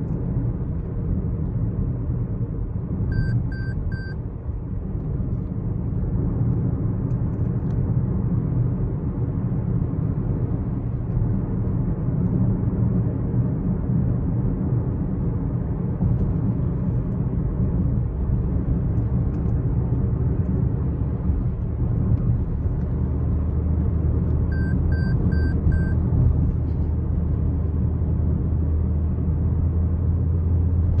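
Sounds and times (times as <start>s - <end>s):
car engine rumble: 0.0s - 31.0s
short beeps: 3.1s - 4.2s, 24.5s - 26.0s.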